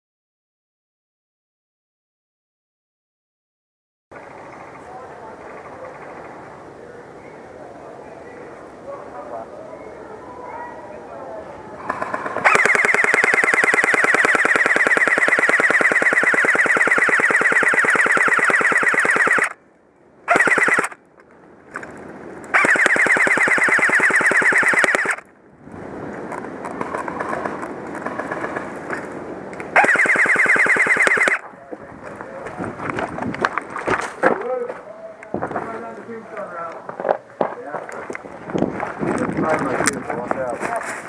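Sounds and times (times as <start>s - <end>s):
airsoft rifle full auto bursts: 12.2s - 19.6s, 20.3s - 21.0s, 22.5s - 25.2s, 29.8s - 31.4s.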